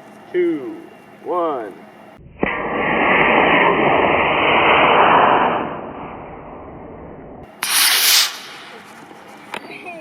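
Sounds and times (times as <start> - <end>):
sharp loud burst: 2.2 - 8.8
rocket motor hissing: 2.4 - 6.6, 7.5 - 9.1.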